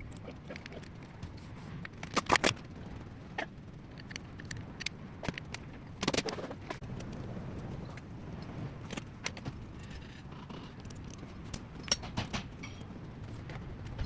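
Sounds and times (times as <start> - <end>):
low steady rumble: 0.0 - 14.0
metal tools clinking: 11.8 - 12.9.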